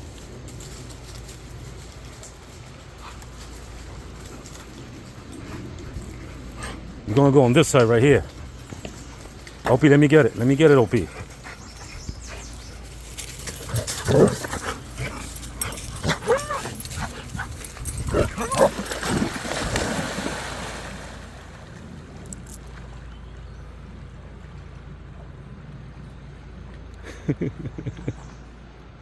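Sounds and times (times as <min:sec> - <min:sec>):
dog whining and yipping: 0:15.0 - 0:19.2.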